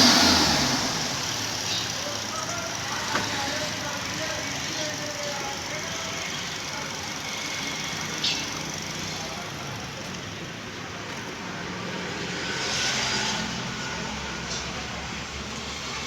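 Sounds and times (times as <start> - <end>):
petrol engine running: 0.0 - 12.3.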